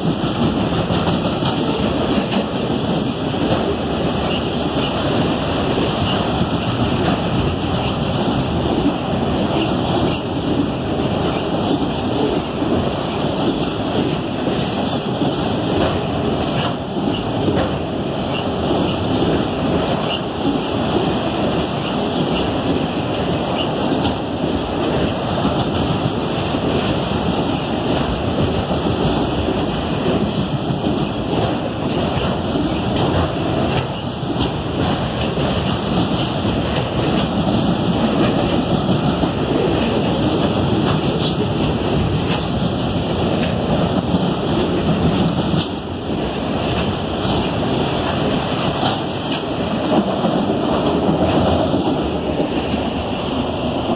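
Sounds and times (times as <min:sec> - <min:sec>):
train wheels on track: 0:00.0 - 0:53.9.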